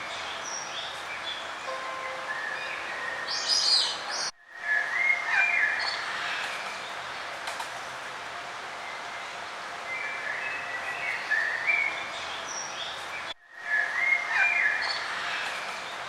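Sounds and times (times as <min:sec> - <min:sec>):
songbirds chirping and singing: 0:00.0 - 0:07.4, 0:08.8 - 0:16.0
steady outdoor hiss: 0:00.0 - 0:16.0.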